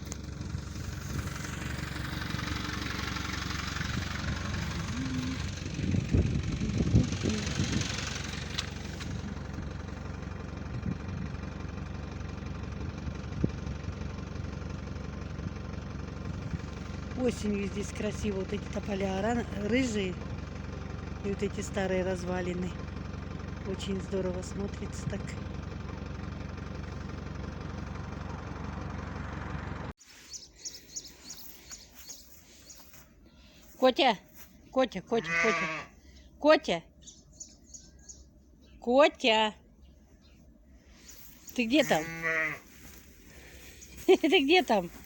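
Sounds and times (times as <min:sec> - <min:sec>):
road noise: 0:00.0 - 0:45.0
vehicle engine running: 0:00.0 - 0:45.0
short high bird chirps: 0:30.0 - 0:33.0.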